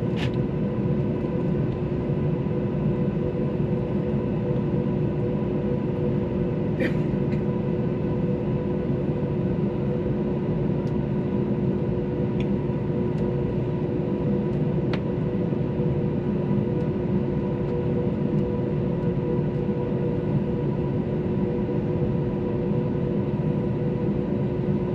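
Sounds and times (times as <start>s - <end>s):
jet engine cabin noise: 0.0s - 24.9s.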